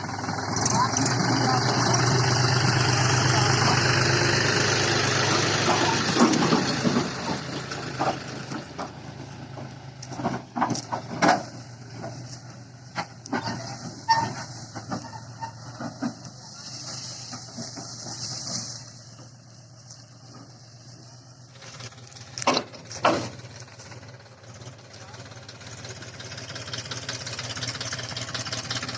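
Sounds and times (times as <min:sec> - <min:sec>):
tractor diesel engine under load: 0:00.0 - 0:28.9
sharp knocks and clicks: 0:22.4 - 0:23.4.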